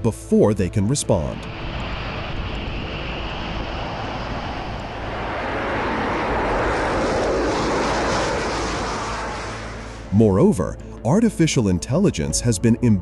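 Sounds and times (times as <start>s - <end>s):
jet aircraft engine rushing: 0.6s - 11.0s.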